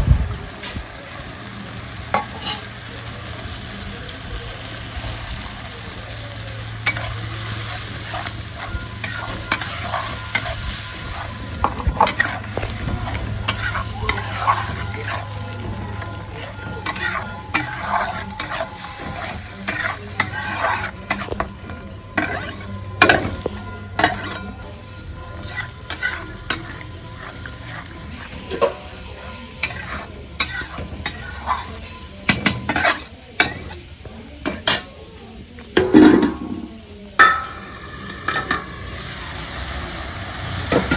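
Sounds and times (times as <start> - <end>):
spice paste sizzling in oil: 0.1 - 34.8, 36.7 - 40.9
spatula scraping and knocking pan: 6.8 - 24.7, 25.3 - 33.8.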